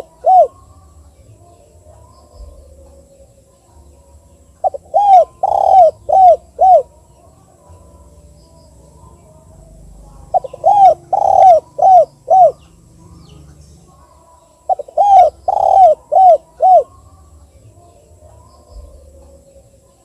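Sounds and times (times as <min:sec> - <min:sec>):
dove cooing: 0:00.0 - 0:00.6, 0:04.6 - 0:07.1, 0:09.1 - 0:14.1, 0:14.7 - 0:17.1.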